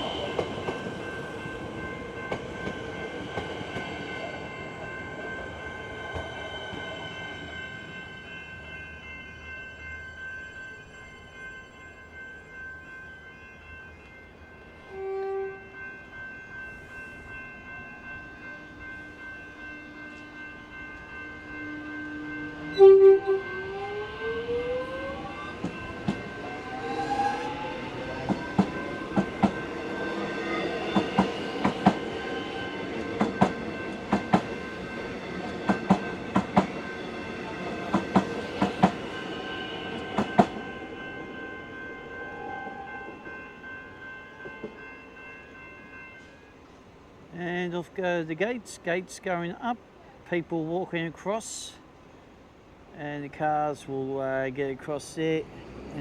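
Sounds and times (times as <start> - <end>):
level crossing bells ringing: 0.0 - 46.6
train horn blast: 14.9 - 15.8, 21.3 - 25.5
train wheels clicking over rail joints: 25.5 - 29.8, 32.8 - 39.2.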